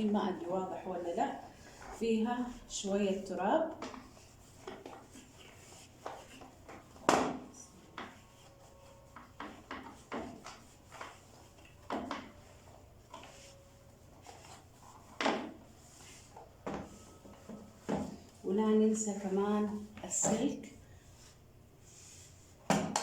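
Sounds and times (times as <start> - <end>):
cloth wiping: 0.0 - 7.0, 7.9 - 11.7, 12.5 - 18.4.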